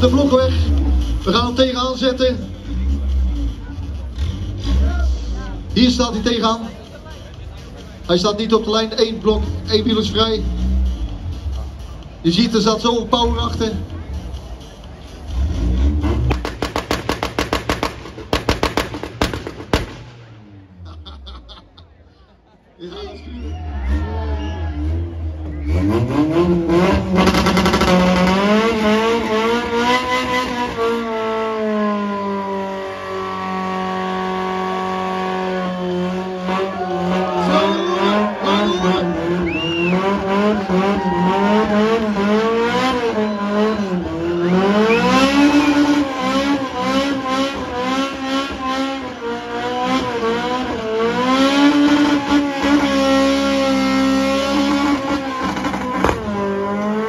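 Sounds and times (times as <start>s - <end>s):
car engine revving hard: 15.2s - 20.5s, 23.8s - 57.0s.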